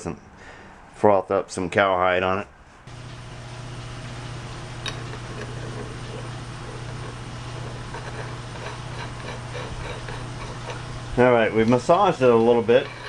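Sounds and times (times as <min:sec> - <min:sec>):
rotary tool humming: 0:02.9 - 0:11.4.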